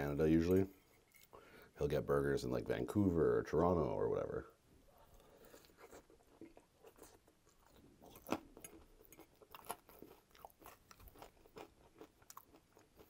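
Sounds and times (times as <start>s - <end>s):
wet chewing sounds: 5.1s - 13.0s.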